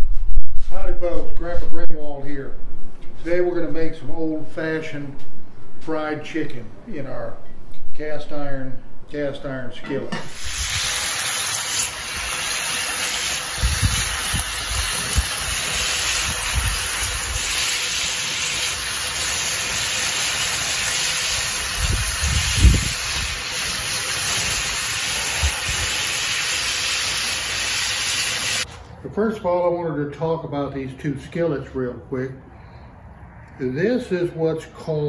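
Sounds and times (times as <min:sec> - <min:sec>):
chicken sizzling in hot oil: 0:10.3 - 0:28.7.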